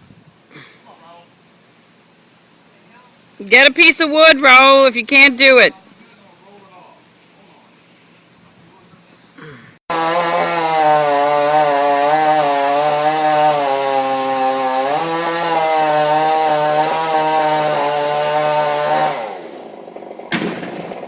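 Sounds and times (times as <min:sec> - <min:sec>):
chainsaw cutting a limb: 0:09.9 - 0:21.0.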